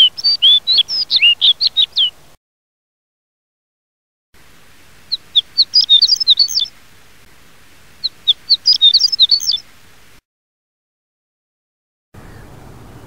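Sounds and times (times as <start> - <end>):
songbird singing high-pitched warble: 0.0 - 2.2, 5.1 - 6.8, 8.0 - 9.7.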